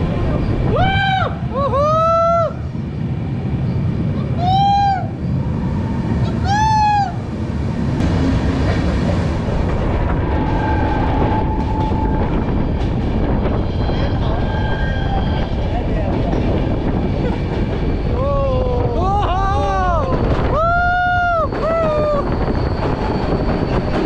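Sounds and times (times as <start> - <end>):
train rumbling: 0.0 - 24.0
rising and falling wail: 18.1 - 22.4.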